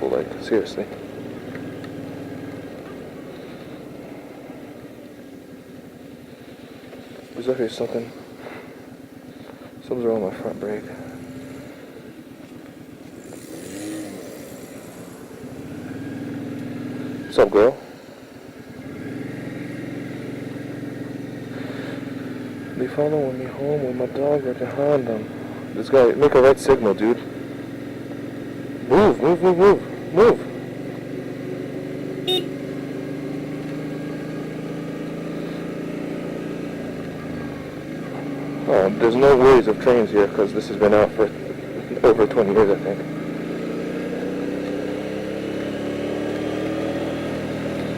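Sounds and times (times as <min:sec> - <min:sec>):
motorcycle engine at low revs: 0:00.0 - 0:47.9
short beep: 0:32.2 - 0:32.6.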